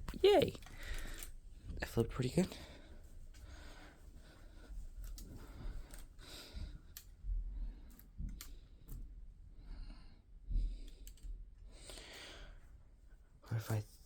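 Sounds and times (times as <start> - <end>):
person breathing: 0.6 - 1.4, 2.5 - 8.9, 9.5 - 12.7.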